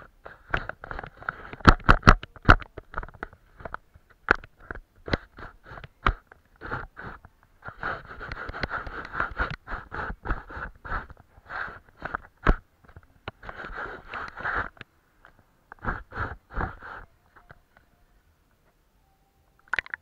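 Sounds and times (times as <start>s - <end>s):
paintbrush strokes on paper: 6.6s - 12.2s, 13.4s - 14.8s, 15.8s - 17.2s.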